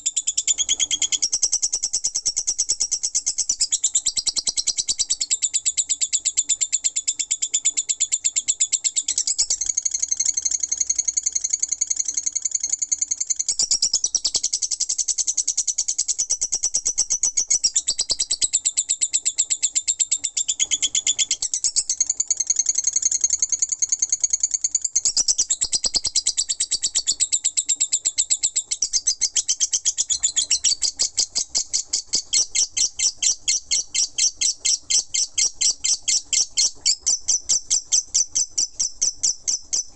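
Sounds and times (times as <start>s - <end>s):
bird rapid high chattering: 9.0s - 39.9s.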